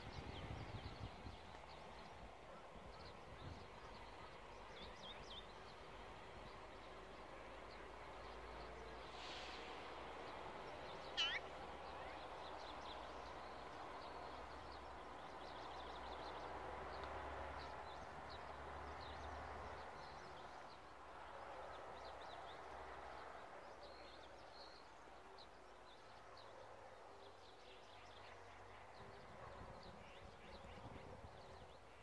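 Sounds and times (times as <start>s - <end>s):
high bird chirps: 11.2s - 11.5s.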